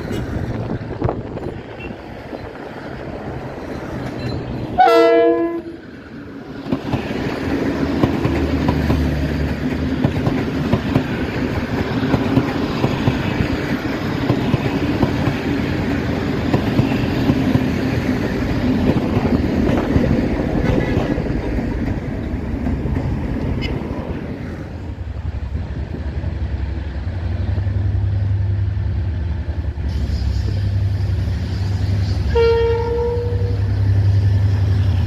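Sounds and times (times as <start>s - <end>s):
rumble of passing train coaches: 0.0s - 35.0s
train horn blast: 4.8s - 5.8s, 20.6s - 21.3s, 32.0s - 33.7s
wheels clacking over rail joints: 6.4s - 25.0s.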